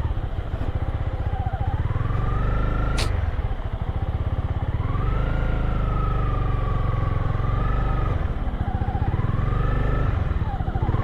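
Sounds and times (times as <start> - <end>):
engine whine: 0.0 - 11.0
sharp knock: 3.0 - 3.2.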